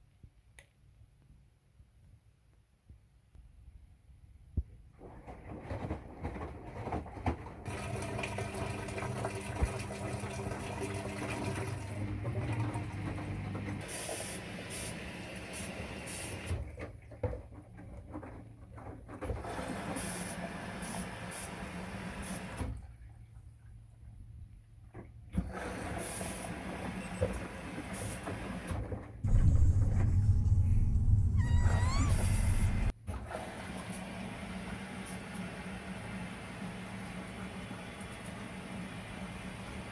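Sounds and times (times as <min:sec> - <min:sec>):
washing machine hum: 0:04.9 - 0:39.9
washing machine drum rumbling: 0:29.2 - 0:32.9.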